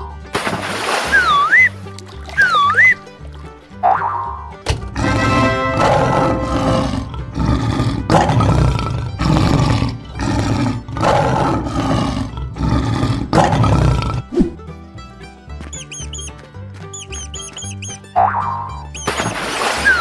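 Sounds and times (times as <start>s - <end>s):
lion roaring: 4.9s - 14.4s.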